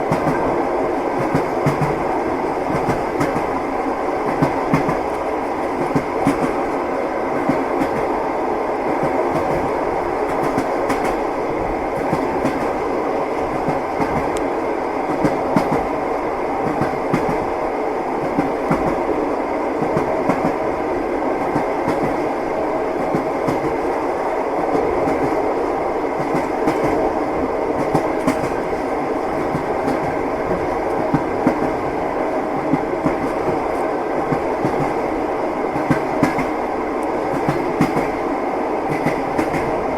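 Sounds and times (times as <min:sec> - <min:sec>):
train wheels clattering on rail joints: 0:01.2 - 0:03.6, 0:04.2 - 0:06.8, 0:09.0 - 0:11.3, 0:13.4 - 0:14.5, 0:27.8 - 0:32.0, 0:32.6 - 0:38.2, 0:38.9 - 0:39.8.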